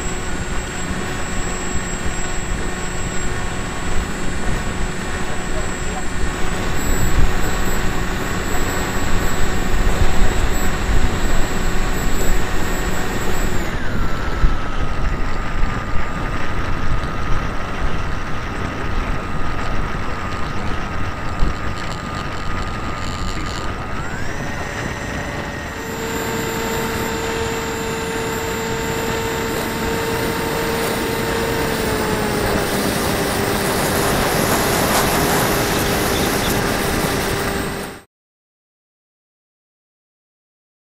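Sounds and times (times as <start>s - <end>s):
model plane motor whine: 0.0s - 38.1s
wind rush: 23.9s - 37.9s.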